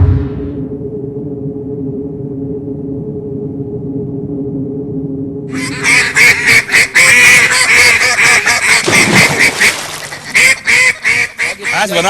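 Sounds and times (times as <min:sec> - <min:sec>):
geese honking: 0:05.5 - 0:12.0.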